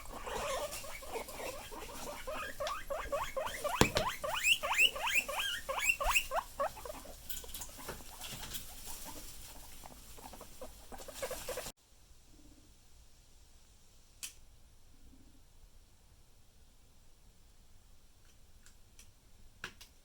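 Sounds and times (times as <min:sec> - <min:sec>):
guinea pigs squealing: 0:00.0 - 0:11.7
sharp knock: 0:03.8 - 0:04.2.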